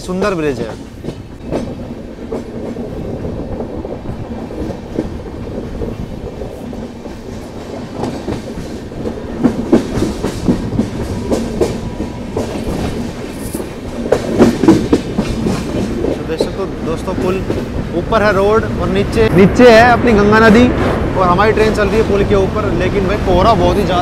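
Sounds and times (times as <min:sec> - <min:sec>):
wheels clacking over rail joints: 0:00.0 - 0:19.0
train coaches rumbling: 0:00.0 - 0:24.0.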